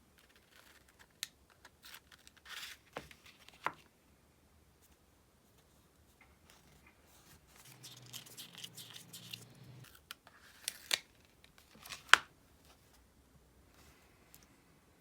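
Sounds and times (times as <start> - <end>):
paper rustling: 6.5 - 11.0.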